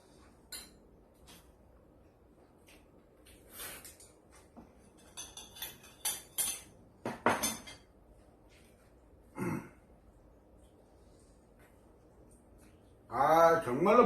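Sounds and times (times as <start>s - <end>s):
utensils clinking on dishes: 3.8s - 7.9s.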